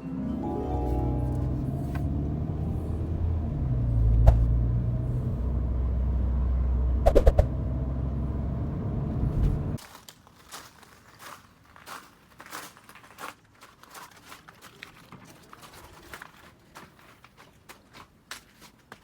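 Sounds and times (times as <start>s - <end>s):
car engine running: 0.8s - 9.8s.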